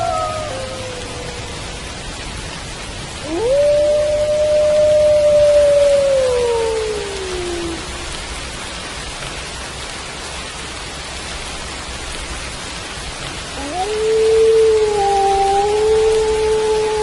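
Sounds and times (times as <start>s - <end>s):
wolf howling: 0.0s - 2.1s, 3.2s - 8.1s, 13.6s - 17.0s
steady rain: 0.0s - 17.0s.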